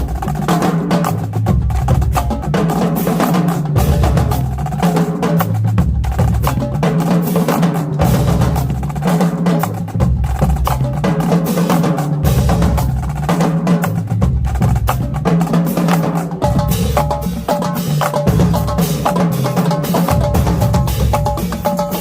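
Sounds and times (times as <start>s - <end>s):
tuned bass drums: 0.0s - 7.1s, 7.9s - 11.3s, 11.9s - 21.8s
snare and tenor drums: 0.0s - 22.0s.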